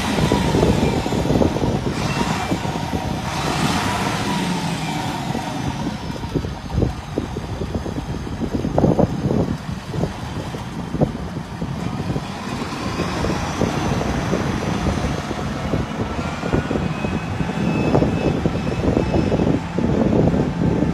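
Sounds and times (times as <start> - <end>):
tractor diesel engine running: 0.0 - 20.9.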